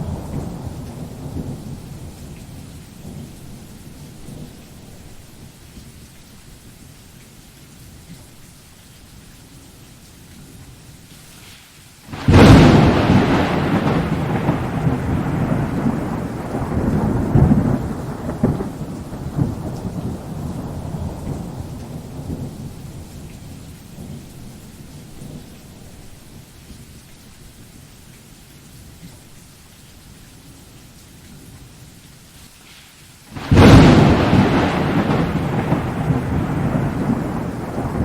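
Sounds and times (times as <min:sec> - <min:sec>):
thunder rumbling: 0:00.0 - 0:05.5, 0:12.1 - 0:26.1, 0:33.4 - 0:38.0
rain hissing: 0:00.0 - 0:38.0.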